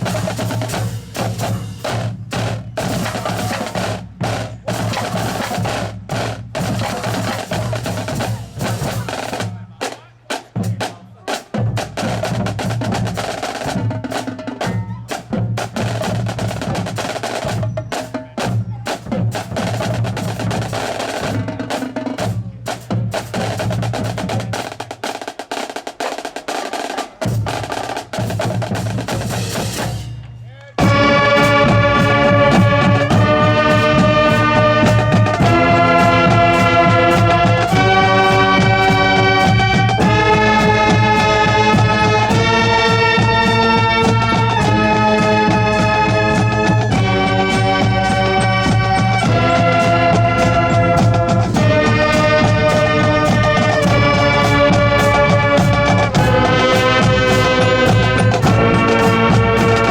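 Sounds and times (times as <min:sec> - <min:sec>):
drumline playing drum cadence: 0:00.0 - 0:59.9.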